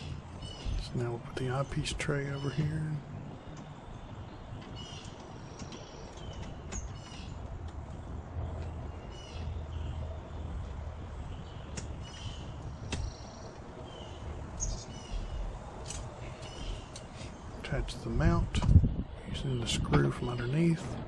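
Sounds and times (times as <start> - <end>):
birds chirping and singing: 0.0 - 21.0.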